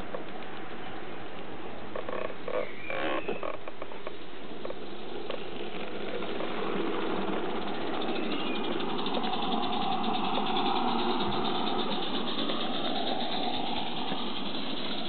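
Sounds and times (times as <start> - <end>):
steam locomotive hissing and beating: 4.8 - 15.0.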